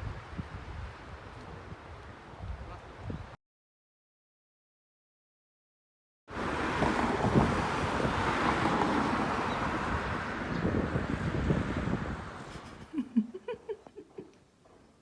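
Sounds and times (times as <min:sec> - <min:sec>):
wind buffeting microphone: 0:00.0 - 0:03.4, 0:06.7 - 0:12.9.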